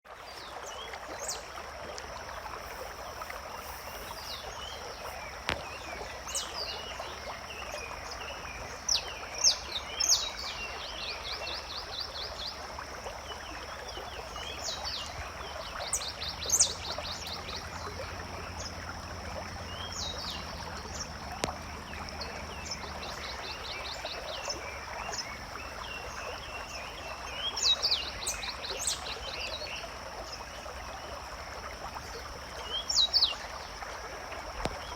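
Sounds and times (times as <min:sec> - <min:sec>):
flowing water: 0:00.0 - 0:34.9
small birds calling: 0:02.4 - 0:12.4, 0:13.3 - 0:29.6.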